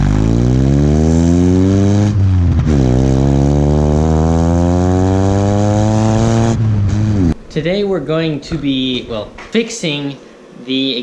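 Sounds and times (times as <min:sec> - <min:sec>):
pickup engine accelerating: 0:00.0 - 0:07.4.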